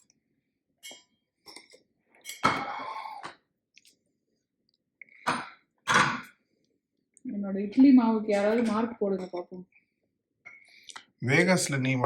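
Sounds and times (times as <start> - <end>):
dishes and cutlery clinking: 0.8 - 3.2.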